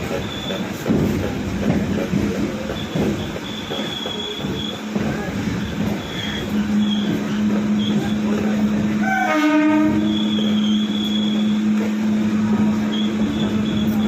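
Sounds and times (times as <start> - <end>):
electric train humming: 0.0 - 14.0
train horn blast: 9.0 - 11.6
high-pitched wheel squeal: 9.0 - 11.7, 12.6 - 14.0.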